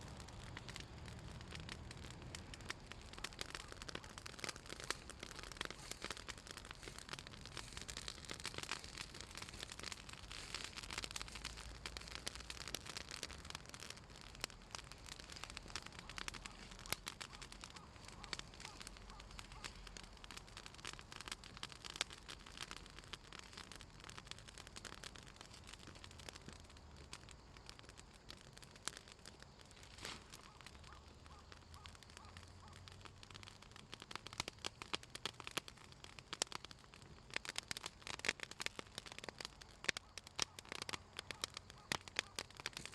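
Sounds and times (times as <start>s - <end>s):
fire crackling and popping: 0.0s - 42.9s
fire hissing: 0.0s - 42.9s.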